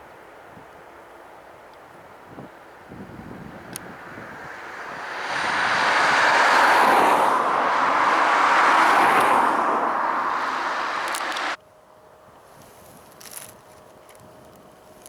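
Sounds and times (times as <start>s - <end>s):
faint high engine whine: 0.0s - 15.0s
jet airliner passing: 3.0s - 11.6s.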